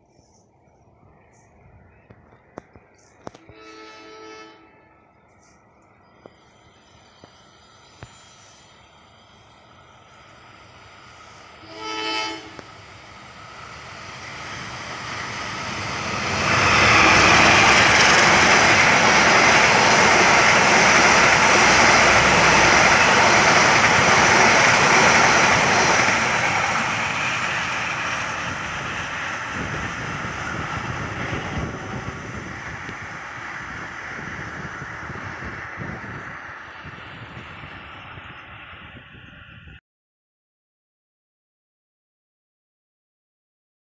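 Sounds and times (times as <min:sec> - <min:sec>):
train rushing past: 0:03.2 - 0:39.8
train horn blast: 0:03.4 - 0:05.1, 0:11.6 - 0:12.7.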